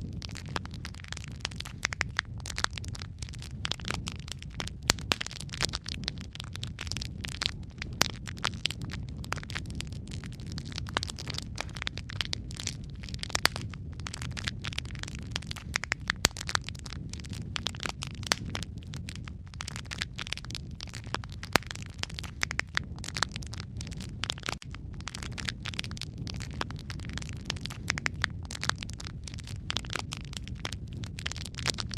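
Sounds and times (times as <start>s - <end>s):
wood fire crackling: 0.0s - 31.9s.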